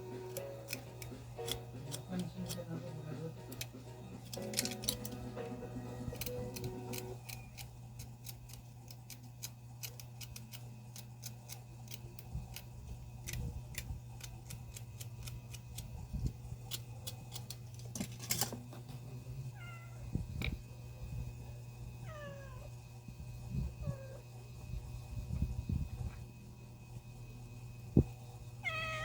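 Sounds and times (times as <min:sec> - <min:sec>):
cat meowing: 0:19.5 - 0:20.0, 0:22.0 - 0:22.7, 0:28.6 - 0:29.0.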